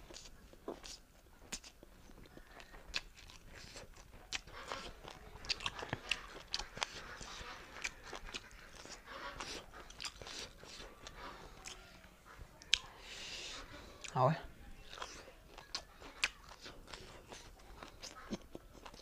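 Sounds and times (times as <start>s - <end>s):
person chewing close to microphone: 0.0s - 19.0s.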